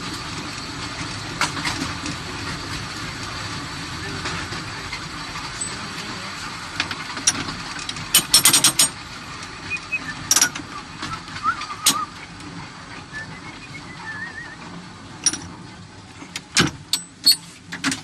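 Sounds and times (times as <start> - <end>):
tram rumbling: 0.0 - 18.0
metallic clicks and knocks: 7.2 - 9.0, 15.2 - 15.5.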